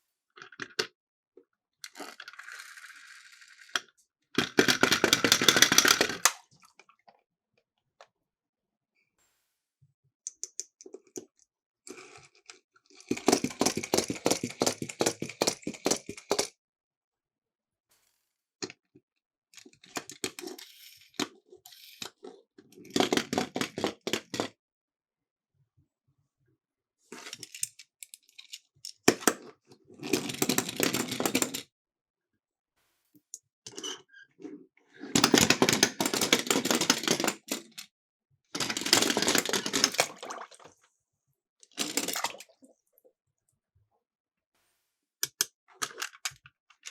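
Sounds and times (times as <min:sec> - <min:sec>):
toy cars rattling down a slope: 0:01.9 - 0:06.3, 0:13.0 - 0:16.5, 0:35.1 - 0:37.7, 0:38.6 - 0:40.1.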